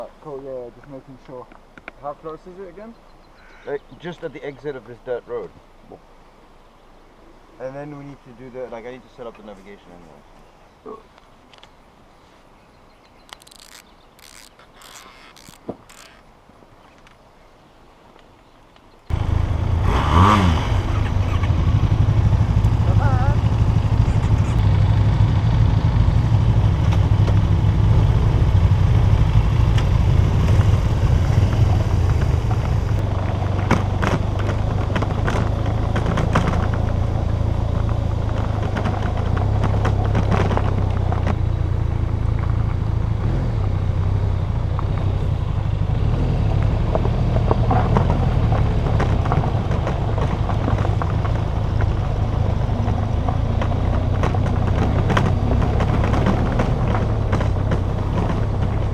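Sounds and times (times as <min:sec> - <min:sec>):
motorcycle engine running: 0:19.1 - 0:58.9.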